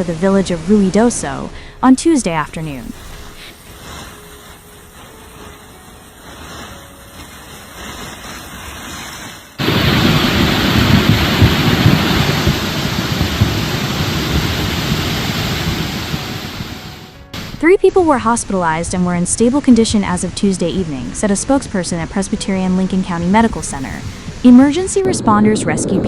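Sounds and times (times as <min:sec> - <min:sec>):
rushing floodwater: 0:05.1 - 0:17.6.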